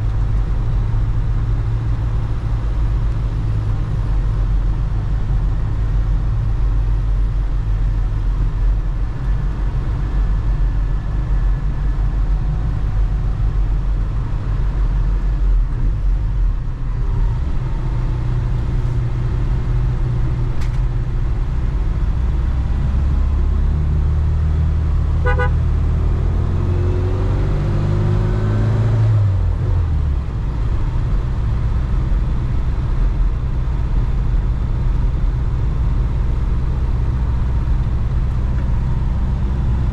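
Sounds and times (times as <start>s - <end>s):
car engine accelerating: 0.0s - 39.9s
road rumble: 0.0s - 39.9s
car horn toot: 25.2s - 25.6s.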